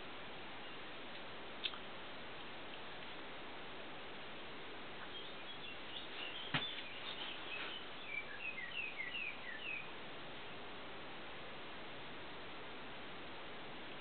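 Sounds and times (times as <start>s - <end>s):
steady hiss: 0.0s - 14.0s
small bird chirping: 5.0s - 10.0s.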